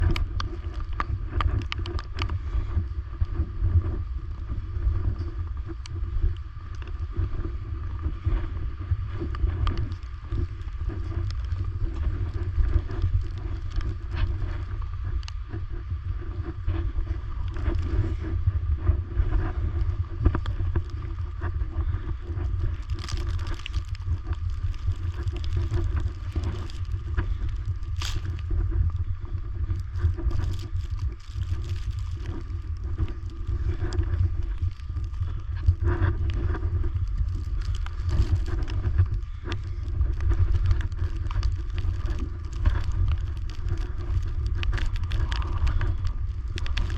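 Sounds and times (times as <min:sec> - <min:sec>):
faint clicks: 0:00.0 - 0:02.4
wind buffeting microphone: 0:00.0 - 0:46.9.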